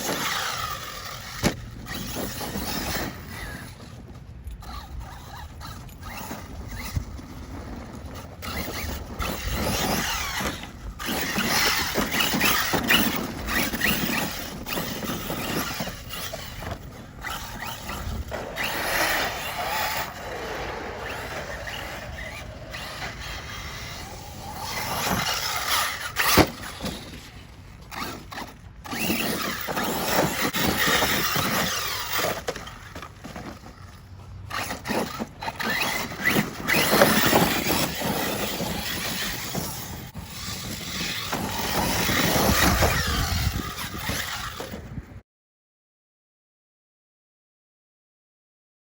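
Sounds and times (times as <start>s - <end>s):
electric motor whine: 4.6s - 33.5s
tyre squeal: 4.6s - 44.7s.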